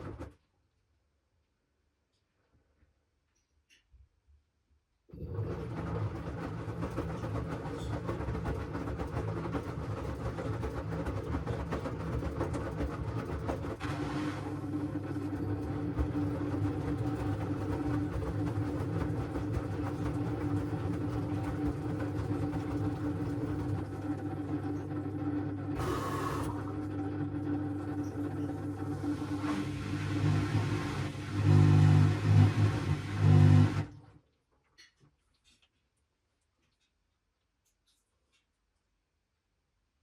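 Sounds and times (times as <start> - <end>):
washing machine motor hum: 5.1 - 34.1.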